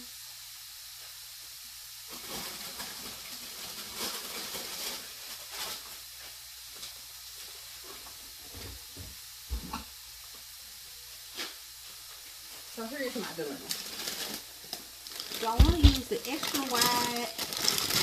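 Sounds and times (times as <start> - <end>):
chicken sizzling in frying pan: 0.0 - 18.0
handling and rustling: 13.7 - 18.0
low thumps: 15.6 - 16.1.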